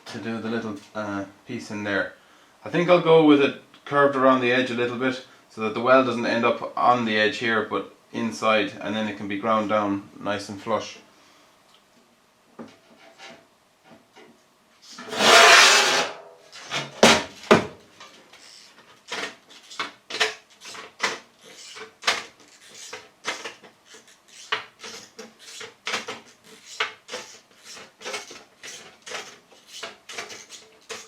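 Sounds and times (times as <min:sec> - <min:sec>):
sheet metal scraping rattle: 0:15.0 - 0:17.1
sharp knocks on metal: 0:17.0 - 0:17.8.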